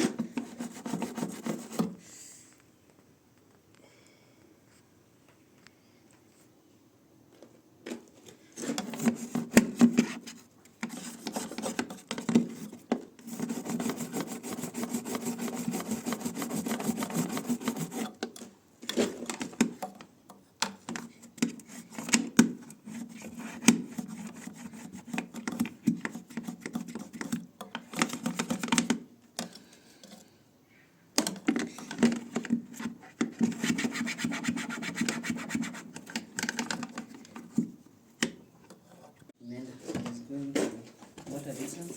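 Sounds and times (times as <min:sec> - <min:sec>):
rapid scrubbing strokes: 0:13.3 - 0:18.2.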